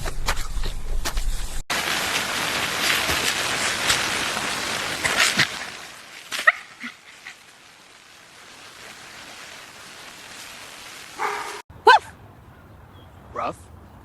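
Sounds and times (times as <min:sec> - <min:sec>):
steady hiss: 0:01.7 - 0:11.6.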